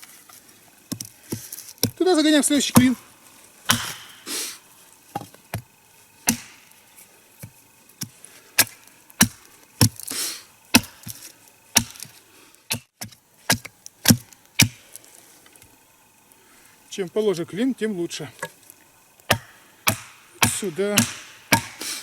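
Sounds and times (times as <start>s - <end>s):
wooden wedge knocking into log: 3.7s - 4.1s.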